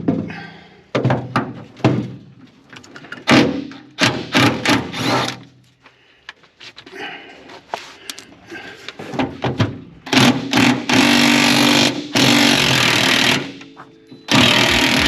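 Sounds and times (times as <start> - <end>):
impact wrench bursts: 3.4 - 5.4, 10.1 - 13.6, 14.3 - 15.0.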